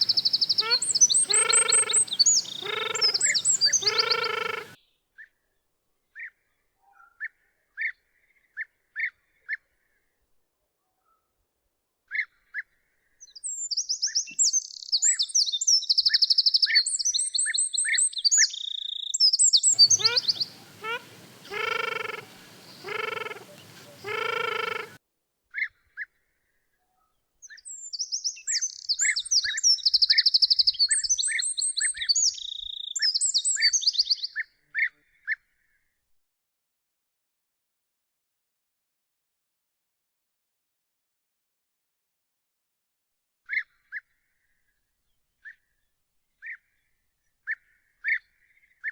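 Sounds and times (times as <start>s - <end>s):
deeper bird calls: 0.0s - 4.8s, 19.7s - 25.0s
faint hiss: 0.0s - 4.8s, 19.8s - 25.0s
songbird trilling: 0.0s - 4.8s, 19.7s - 25.0s.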